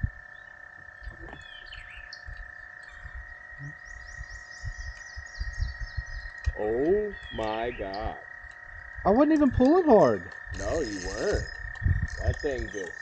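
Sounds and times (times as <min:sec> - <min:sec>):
frogs trilling: 0:00.0 - 0:13.0
bird chirping: 0:00.2 - 0:13.0.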